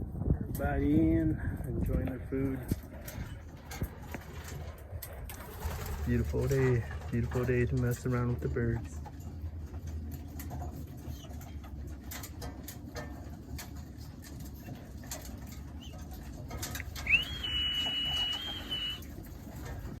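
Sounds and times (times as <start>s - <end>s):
pigeons pecking feed clicks: 2.9s - 20.0s
pigeons cooing: 15.6s - 19.0s
high whistling tone: 16.9s - 19.1s.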